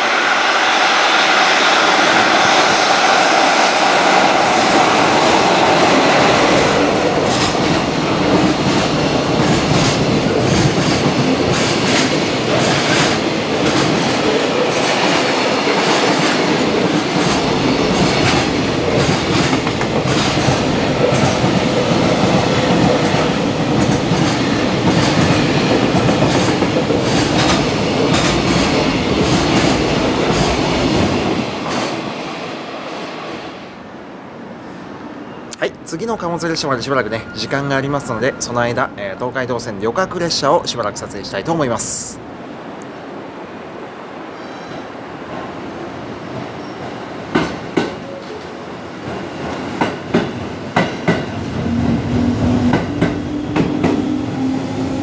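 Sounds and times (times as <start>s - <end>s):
train wheels clattering: 1.6s - 32.2s.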